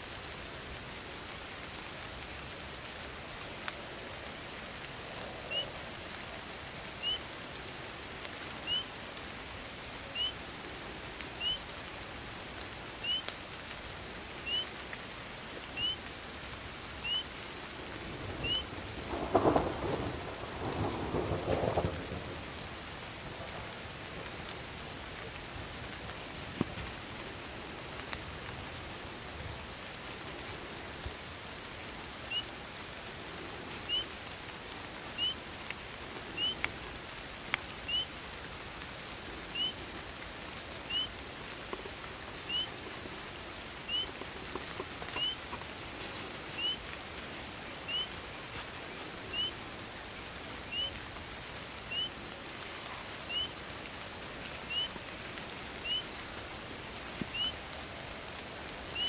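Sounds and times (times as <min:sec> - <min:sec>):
rain and wind hiss: 0:00.0 - 0:59.0
small animal high chirp: 0:10.2 - 0:10.4, 0:11.4 - 0:11.6, 0:13.0 - 0:13.3, 0:14.4 - 0:14.7, 0:15.8 - 0:16.0, 0:17.0 - 0:17.3, 0:18.4 - 0:18.6, 0:33.9 - 0:34.1, 0:35.2 - 0:35.4, 0:37.9 - 0:38.1, 0:39.6 - 0:39.8, 0:40.9 - 0:41.1, 0:42.5 - 0:42.7, 0:43.9 - 0:44.1, 0:45.2 - 0:45.4, 0:46.6 - 0:46.8, 0:49.3 - 0:49.6, 0:50.7 - 0:50.9, 0:51.9 - 0:52.1, 0:53.3 - 0:53.6, 0:54.7 - 0:55.0, 0:55.8 - 0:56.2, 0:57.3 - 0:57.6.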